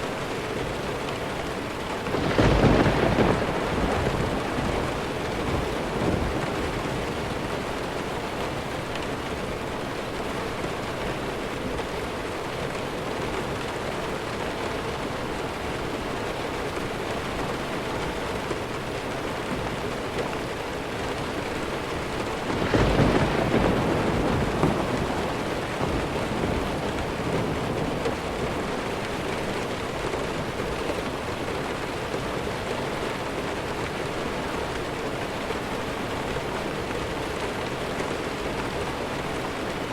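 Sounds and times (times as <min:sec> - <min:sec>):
heavy rain: 0:00.0 - 0:39.9
distant thunder rolling: 0:02.0 - 0:08.7, 0:22.3 - 0:31.2.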